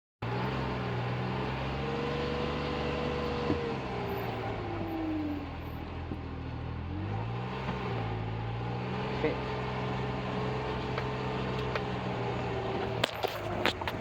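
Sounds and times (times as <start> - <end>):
engine running with whine: 0.2 - 14.0.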